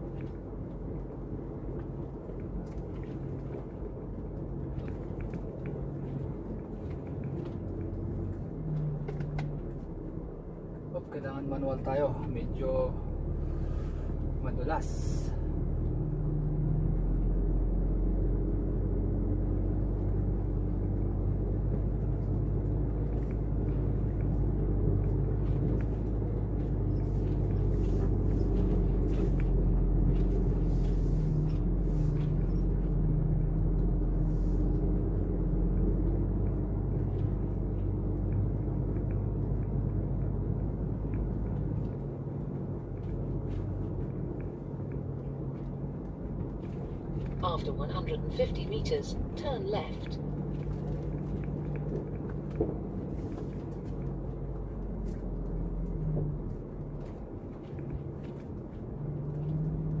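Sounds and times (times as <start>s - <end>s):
truck engine rumbling under load: 0.0s - 60.0s.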